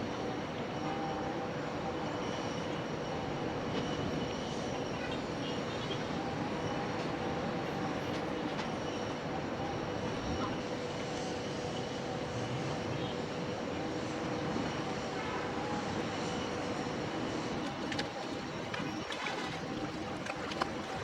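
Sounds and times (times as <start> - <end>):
steady mechanical drone: 0.0 - 21.0.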